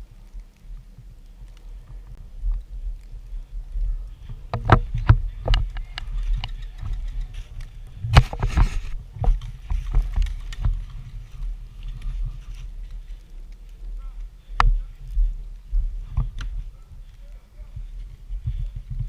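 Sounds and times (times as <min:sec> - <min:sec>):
wind rumbling on microphone: 0:00.0 - 0:19.0
sharp clicks: 0:04.6 - 0:08.3.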